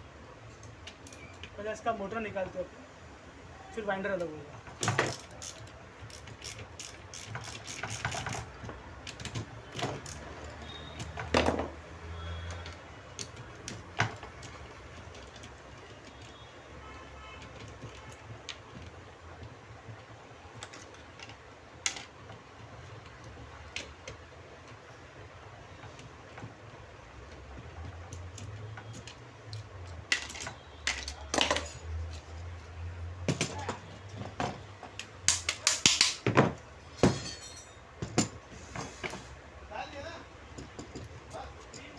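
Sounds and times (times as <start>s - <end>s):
hand tools clicking and knocking: 4.2s - 16.4s, 17.4s - 39.3s, 40.4s - 41.9s.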